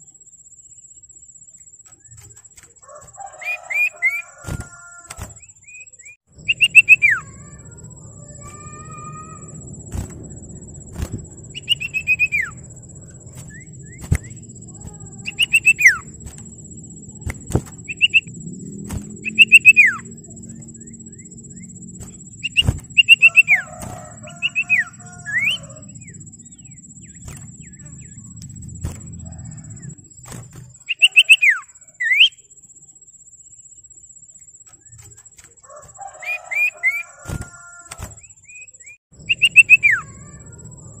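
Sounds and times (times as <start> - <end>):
bird whistled calls: 3.2 - 10.1, 11.0 - 12.7, 13.3 - 16.4, 17.2 - 20.2, 20.8 - 28.3, 30.8 - 32.4, 36.1 - 40.5
low hum: 4.4 - 30.8, 39.2 - 41.0
sharp clicks: 17.1 - 19.7.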